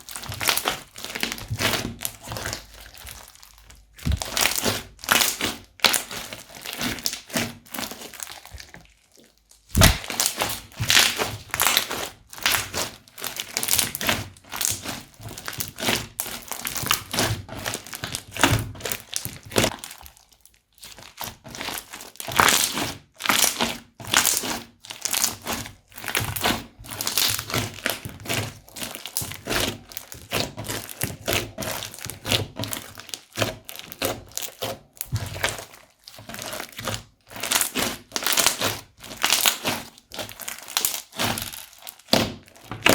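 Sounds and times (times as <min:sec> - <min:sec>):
slime crackling and popping: 0:00.0 - 0:42.9
sharp thunk: 0:09.7 - 0:10.0.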